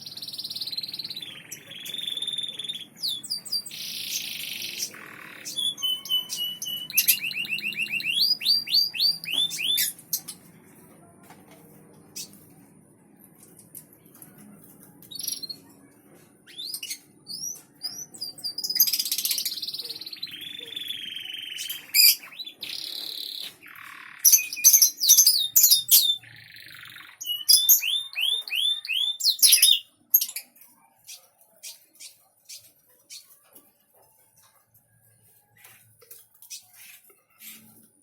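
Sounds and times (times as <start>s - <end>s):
songbird singing: 0.0s - 10.5s, 16.4s - 33.4s.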